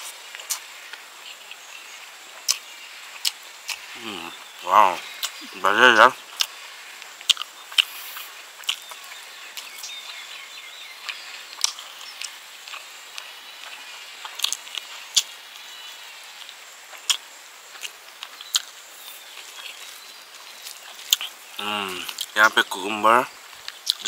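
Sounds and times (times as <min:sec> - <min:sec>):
wet chewing and mouth smacks: 0:00.3 - 0:01.8, 0:02.4 - 0:03.9, 0:05.1 - 0:05.5, 0:06.3 - 0:10.2, 0:11.0 - 0:15.3, 0:16.4 - 0:21.4, 0:22.0 - 0:22.4, 0:23.5 - 0:24.0.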